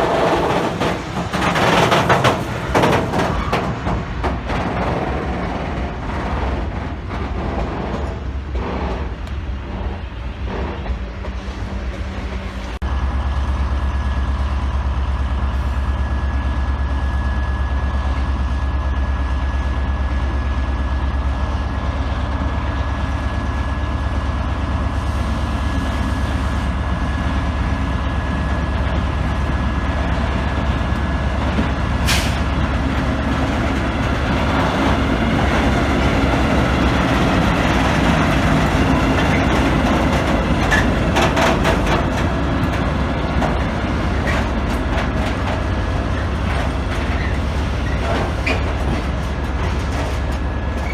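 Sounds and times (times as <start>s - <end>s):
train wheel clicks: 0.0s - 12.4s
train engine rumble: 0.0s - 50.9s.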